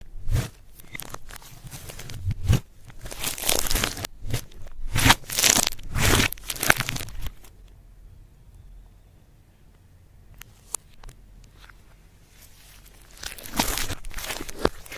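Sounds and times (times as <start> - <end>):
makeup crunching and crinkling: 0.3 - 7.5, 11.5 - 14.9.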